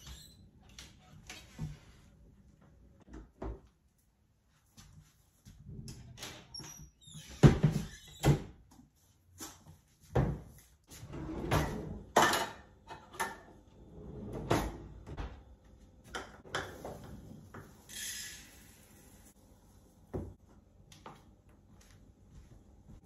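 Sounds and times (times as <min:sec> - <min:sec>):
cabinet door and drawer shutting: 0:14.1 - 0:15.3.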